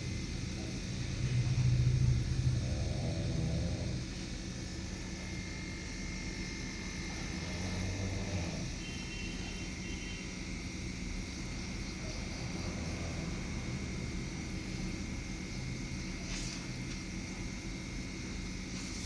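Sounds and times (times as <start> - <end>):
low motor hum: 0.0 - 6.1.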